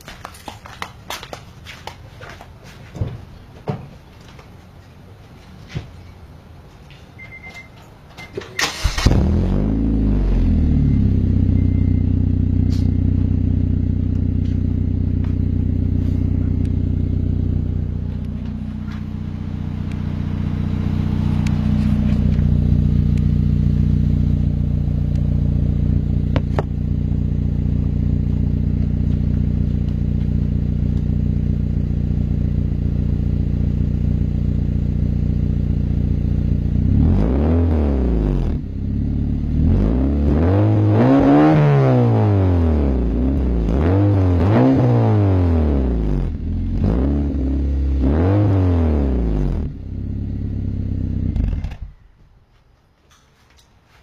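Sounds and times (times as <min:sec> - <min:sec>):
engine starting and idling: 0:08.5 - 0:09.6.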